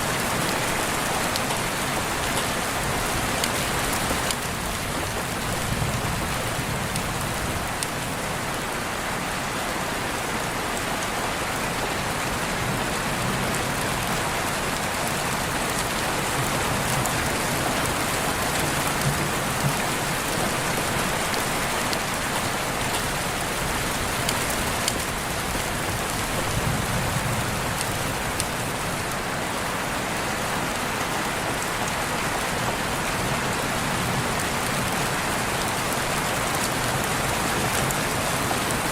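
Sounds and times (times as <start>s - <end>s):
rain falling: 0.0s - 38.9s
raindrops ticking on surfaces: 0.0s - 38.9s.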